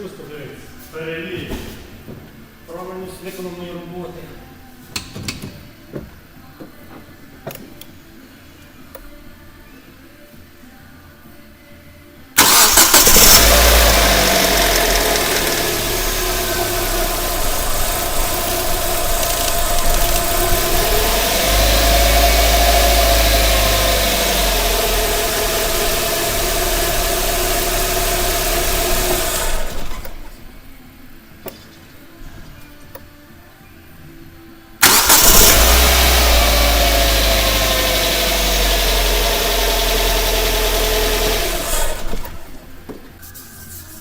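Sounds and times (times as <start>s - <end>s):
car engine starting and idling: 12.4s - 30.7s, 34.8s - 42.9s.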